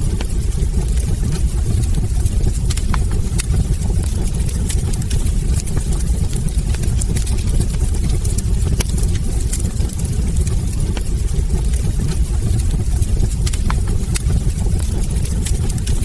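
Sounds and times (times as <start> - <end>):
logs crackling and popping: 0.0 - 16.0
wood fire burning: 0.0 - 16.0.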